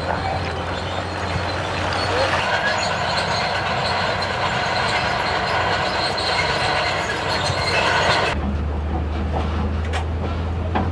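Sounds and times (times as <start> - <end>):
machinery metallic squealing and grinding: 0.0 - 8.4.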